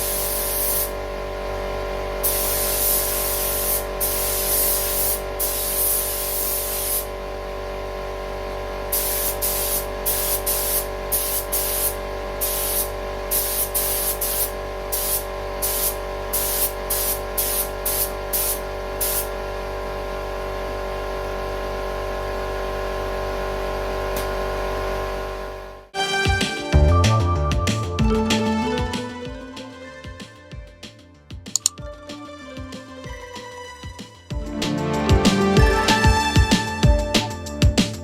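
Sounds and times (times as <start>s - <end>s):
short spray bursts: 0.0s - 1.0s, 2.2s - 7.2s, 8.9s - 19.4s
spray gun hissing: 0.0s - 1.0s, 2.2s - 7.2s, 8.9s - 19.4s
steady hum: 0.0s - 25.9s.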